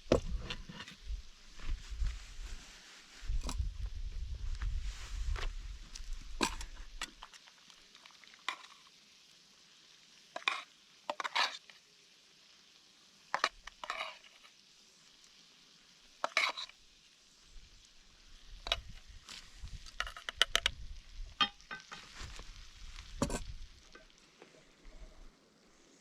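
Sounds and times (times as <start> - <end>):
food sizzling in a pan: 1.0 - 26.0
utensil scraping and clinking pan: 8.5 - 8.8, 10.4 - 11.6, 13.4 - 14.4, 16.2 - 16.8.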